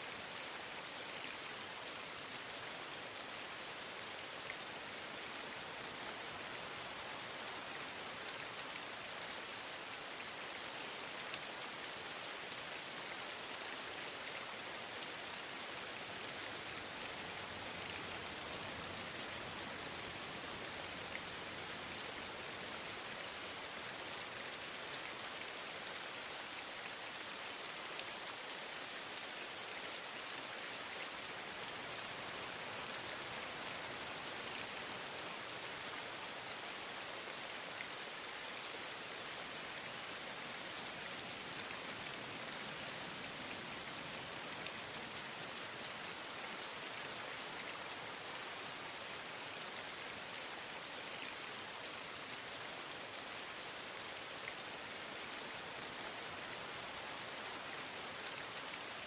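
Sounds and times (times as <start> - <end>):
steady rain hissing: 0.0 - 59.0
faint raindrop ticks: 0.2 - 38.0, 49.4 - 51.5.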